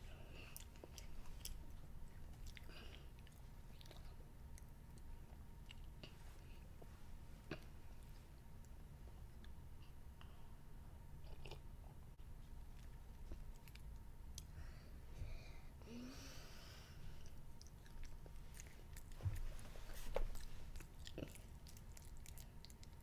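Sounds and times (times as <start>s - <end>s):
child chewing candy: 0.3s - 6.8s, 11.2s - 14.6s, 17.0s - 23.0s.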